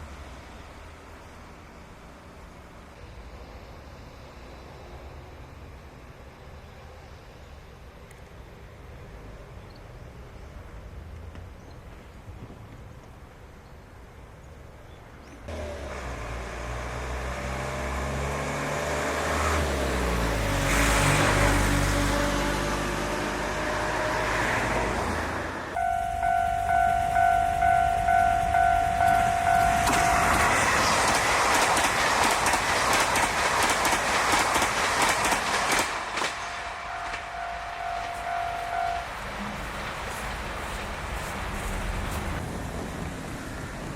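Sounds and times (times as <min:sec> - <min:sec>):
diesel locomotive engine running: 0:19.8 - 0:43.9
level crossing bell ringing: 0:25.8 - 0:30.5, 0:36.4 - 0:39.4
train wheels clattering over rails: 0:29.0 - 0:43.9.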